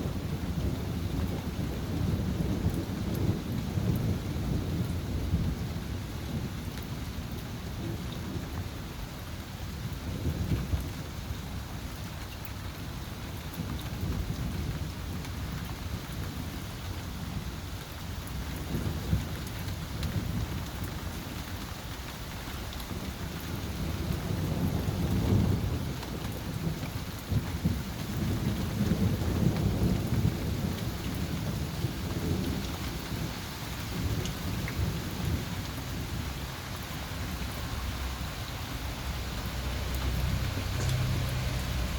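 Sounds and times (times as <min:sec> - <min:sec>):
rain hissing: 0:20.2 - 0:41.9
thunder rumbling: 0:22.9 - 0:41.9.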